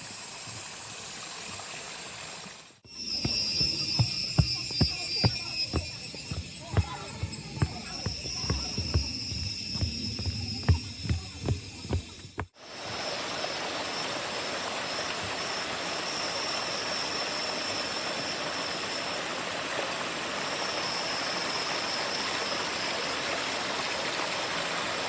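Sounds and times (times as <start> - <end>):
flowing water rushing: 0.0 - 25.0
faint high thin tone: 2.9 - 12.2.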